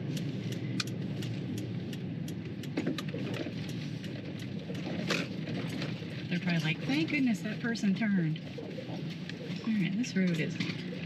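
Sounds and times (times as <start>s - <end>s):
sharp clicks and rattles: 0.0s - 7.5s
road and engine rumble: 0.0s - 11.0s.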